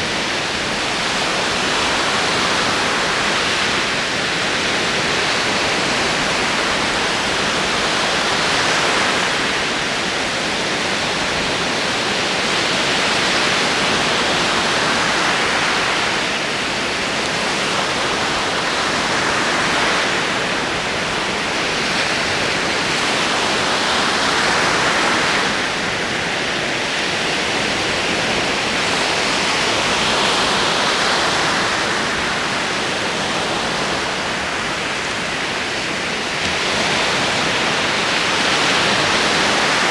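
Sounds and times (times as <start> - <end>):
ocean waves on shore: 0.0 - 39.9.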